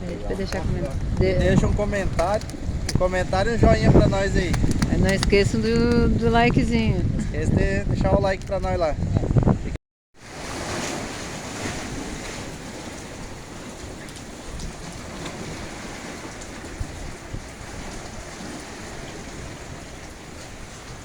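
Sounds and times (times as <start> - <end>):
raindrop ticks: 0.5 - 3.0, 4.5 - 5.4
rain falling: 12.4 - 21.0.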